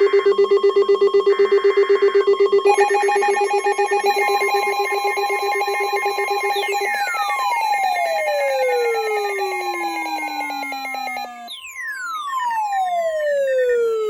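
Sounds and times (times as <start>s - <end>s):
fast pulsing two-tone trill: 2.7s - 11.7s.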